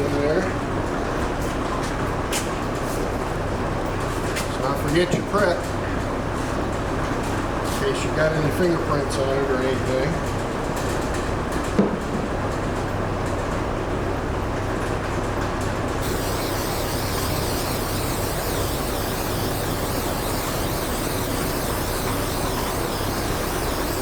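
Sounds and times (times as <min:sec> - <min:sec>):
mechanical drone with low hum: 0:16.0 - 0:24.0
steady high hiss: 0:16.0 - 0:24.0.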